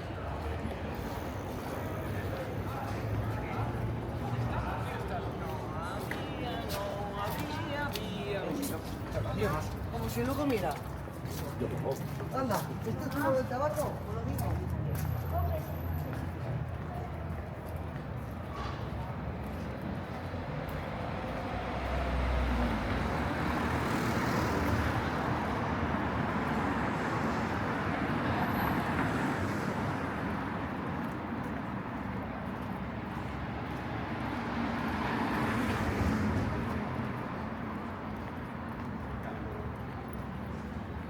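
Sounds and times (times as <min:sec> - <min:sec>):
hum of cars: 0:00.0 - 0:41.0
vehicles passing: 0:00.0 - 0:41.0.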